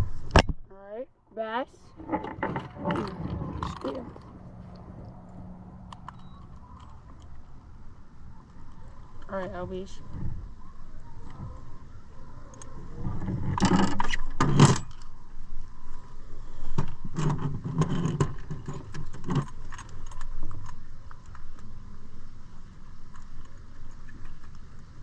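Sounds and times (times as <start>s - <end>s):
metal gear jangling and rattling: 2.1s - 4.4s.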